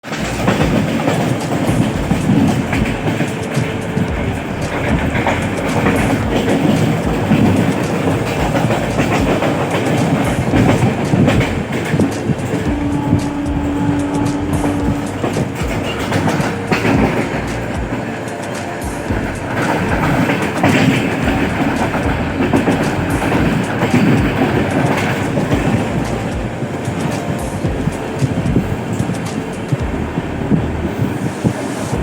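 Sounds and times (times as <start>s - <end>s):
steady tone: 0.0s - 32.0s
train wheels clattering on track: 0.0s - 32.0s.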